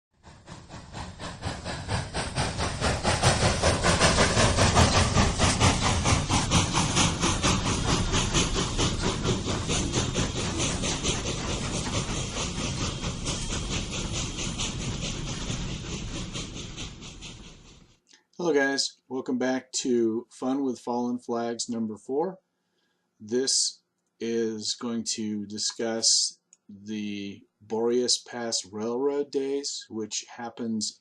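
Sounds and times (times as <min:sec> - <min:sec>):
steam hiss: 0:00.2 - 0:17.8
steam locomotive chuffing: 0:00.2 - 0:22.3, 0:23.2 - 0:31.0.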